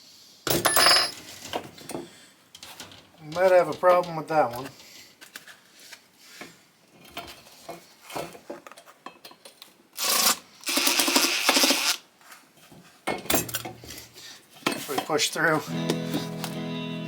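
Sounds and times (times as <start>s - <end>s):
fastener grating through threads: 10.0s - 12.0s.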